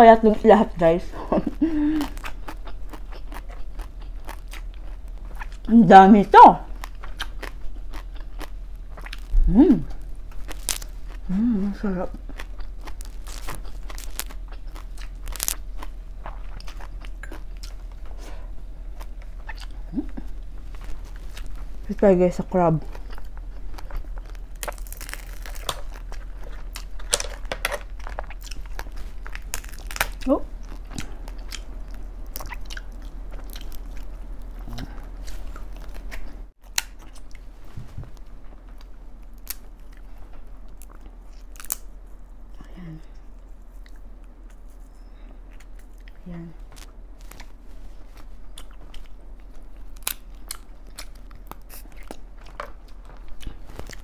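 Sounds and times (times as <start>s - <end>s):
rising hum from person: 0.0s - 54.0s
person chewing with wet clicks: 1.4s - 5.7s, 6.7s - 9.4s, 10.0s - 11.3s, 12.1s - 18.1s, 18.9s - 21.7s, 22.9s - 37.5s, 48.2s - 54.0s
crab shell cracking: 10.4s - 11.0s, 12.6s - 15.7s, 23.2s - 30.2s, 40.8s - 41.9s.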